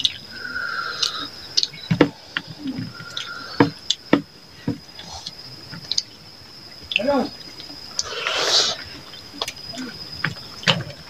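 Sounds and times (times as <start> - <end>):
chewing clicks: 5.0 - 6.1, 6.8 - 10.9.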